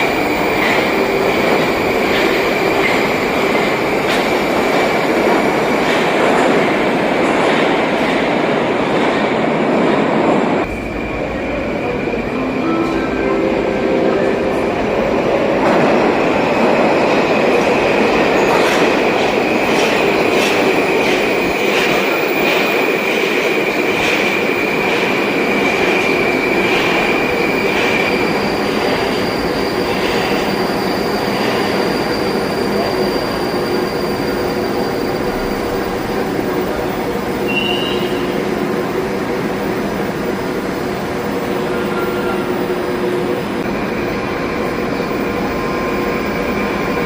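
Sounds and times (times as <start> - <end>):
high wheel squeal: 26.2 - 36.1, 37.4 - 38.6.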